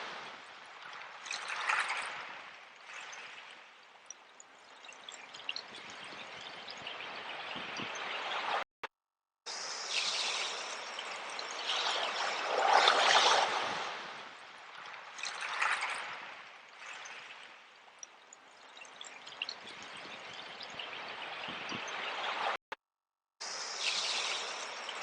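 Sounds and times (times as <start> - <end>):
sea waves washing: 10.1 - 14.5.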